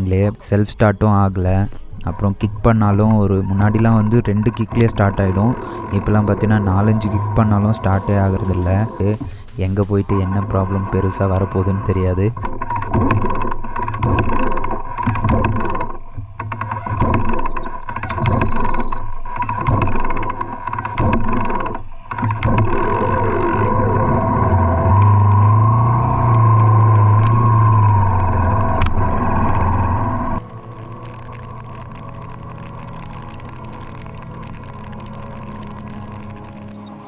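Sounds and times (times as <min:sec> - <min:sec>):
road noise: 0:04.1 - 0:12.5, 0:24.2 - 0:37.0
short high-pitched beep: 0:17.5 - 0:19.0, 0:36.7 - 0:37.0.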